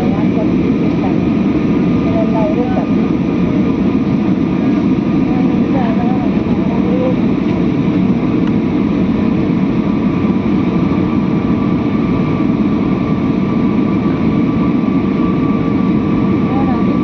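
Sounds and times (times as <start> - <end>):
airplane cabin engine drone: 0.0 - 17.0.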